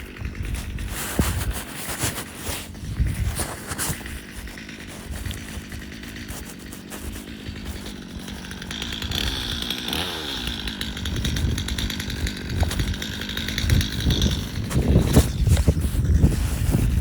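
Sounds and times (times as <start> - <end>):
chainsaw engine running: 0.0 - 17.0.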